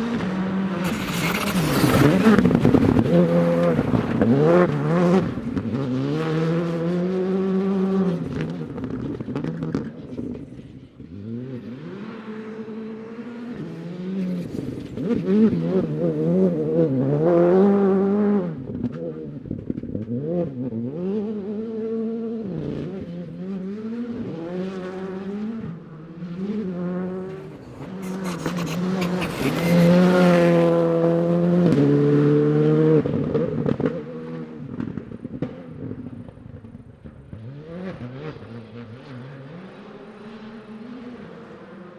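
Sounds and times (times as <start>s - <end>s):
rally car engine revving: 0.7s - 4.6s, 26.8s - 31.5s.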